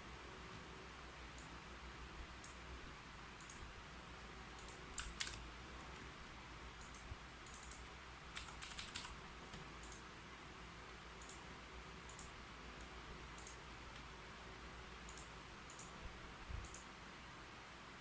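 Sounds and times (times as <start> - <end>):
faint steady hiss: 0.0 - 18.0
typing on keyboard: 4.6 - 5.4, 6.8 - 9.2.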